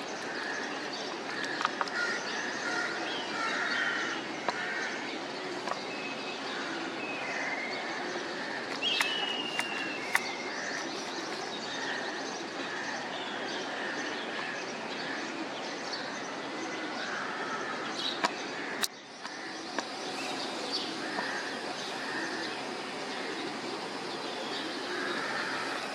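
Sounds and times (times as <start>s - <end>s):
birds chirping: 0.0s - 25.9s
outdoor background noise: 0.0s - 25.9s
sharp clicks: 8.7s - 11.4s.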